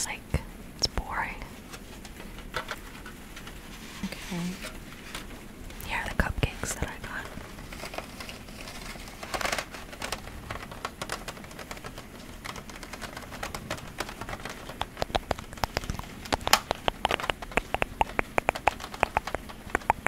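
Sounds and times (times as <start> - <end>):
sharp irregular ticks and taps: 14.4 - 20.0.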